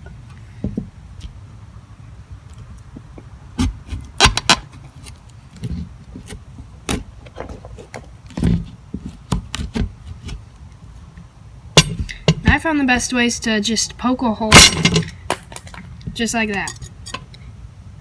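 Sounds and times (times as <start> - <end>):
knife scraping gourd: 3.6 - 11.1.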